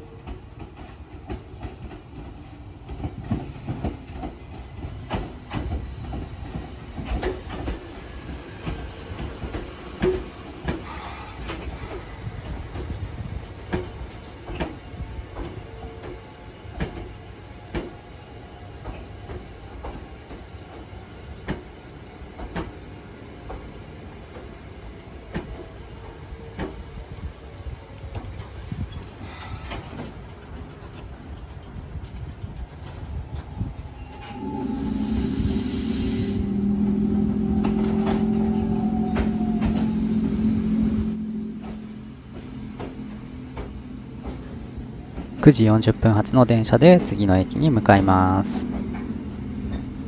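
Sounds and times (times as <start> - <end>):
train rumble: 0.0 - 50.0
wheels clacking over rail joints: 0.2 - 11.8, 36.5 - 50.0.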